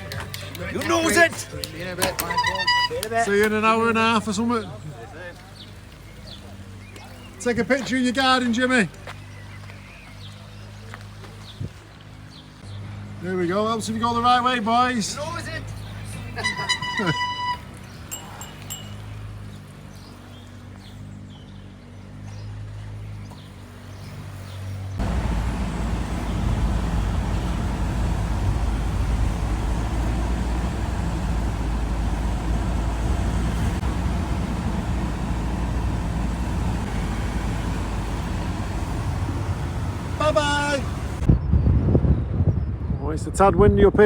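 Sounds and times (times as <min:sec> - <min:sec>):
vehicle engine humming: 0:00.0 - 0:13.0, 0:13.8 - 0:21.2, 0:21.9 - 0:41.3
wind buffeting microphone: 0:25.0 - 0:44.0.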